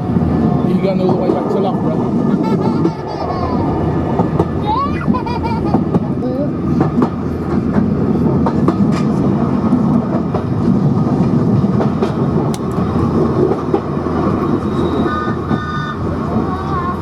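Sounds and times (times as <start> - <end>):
train rumbling on track: 0.0 - 17.0
wheels clicking over rail joints: 0.8 - 17.0
wheels squealing: 14.1 - 17.0.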